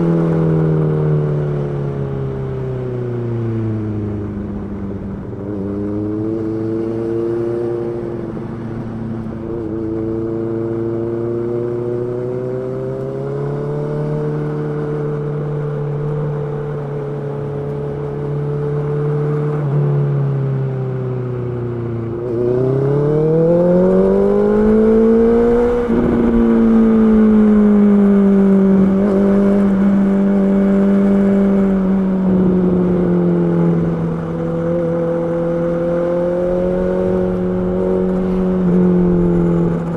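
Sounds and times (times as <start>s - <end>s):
motorcycle engine revving: 20.9s - 39.9s.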